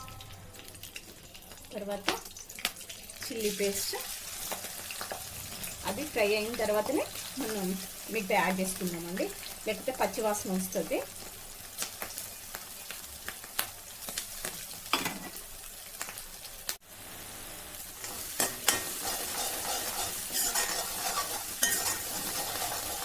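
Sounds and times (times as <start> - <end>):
paste sizzling in hot oil: 0.0 - 23.0
spatula scraping metal pan: 18.0 - 23.0.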